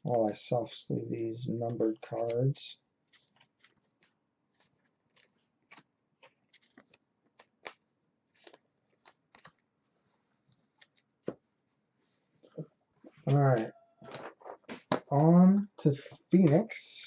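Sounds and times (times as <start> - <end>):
cards sliding into plastic sleeves: 3.1 - 9.6.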